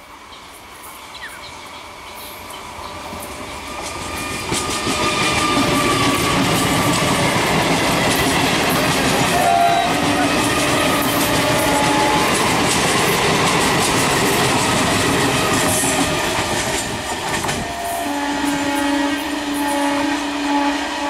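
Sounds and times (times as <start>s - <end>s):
electric train running past: 0.0s - 21.0s
train horn: 8.6s - 12.8s, 17.4s - 21.0s.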